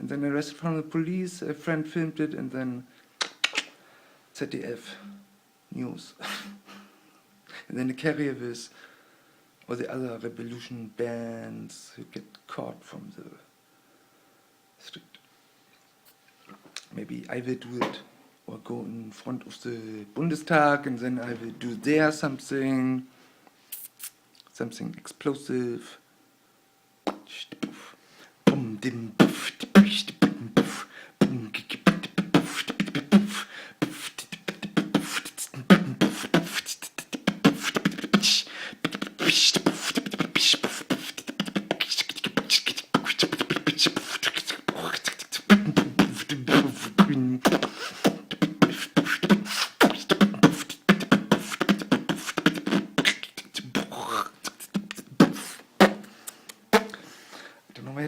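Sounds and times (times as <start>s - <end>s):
person beatboxing: 3.2s - 3.7s, 23.7s - 24.1s, 27.1s - 57.0s.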